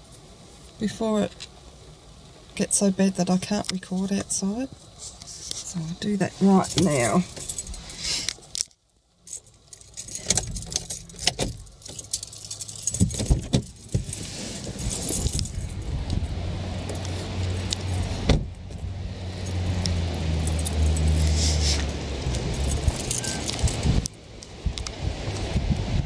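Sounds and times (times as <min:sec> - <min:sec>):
handling clicks and knocks: 0:06.6 - 0:15.8
wind buffeting microphone: 0:13.0 - 0:19.2, 0:22.2 - 0:26.0.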